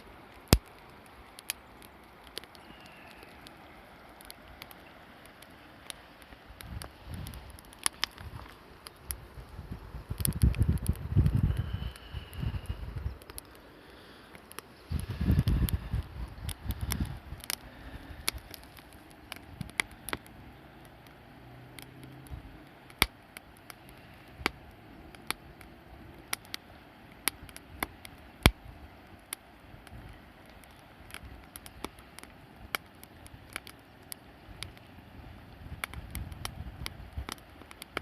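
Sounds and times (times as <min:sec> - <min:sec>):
campfire crackling and popping: 0:00.0 - 0:38.0.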